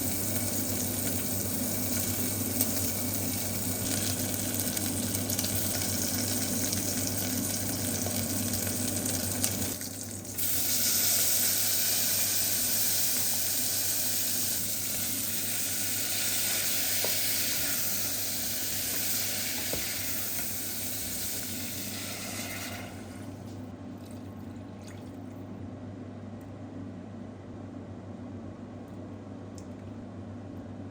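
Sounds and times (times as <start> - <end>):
cooking hiss: 0.0 - 23.4.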